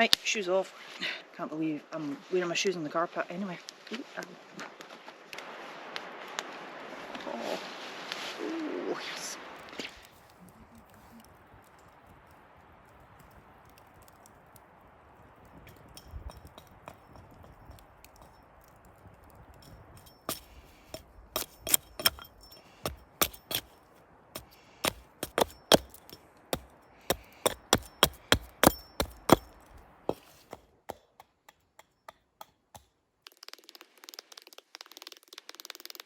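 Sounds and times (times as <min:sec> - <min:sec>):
axe chopping wood: 0:20.3 - 0:23.8, 0:24.4 - 0:33.0.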